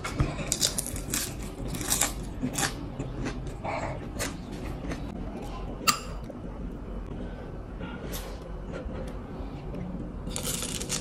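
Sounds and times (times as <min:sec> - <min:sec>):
chewing crispy spring roll: 0:00.5 - 0:03.6, 0:10.3 - 0:11.0.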